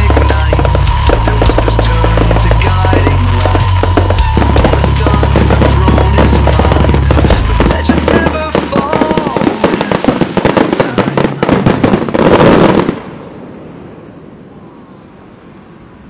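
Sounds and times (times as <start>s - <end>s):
music with heavy bass beat: 0.0s - 10.0s
fireworks crackling and popping: 0.0s - 13.4s.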